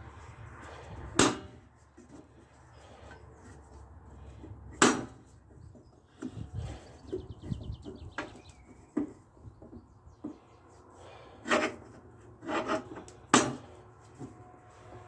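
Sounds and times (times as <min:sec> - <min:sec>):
rubbing and scraping: 0:00.0 - 0:15.0
rasping scrapes: 0:10.4 - 0:15.0.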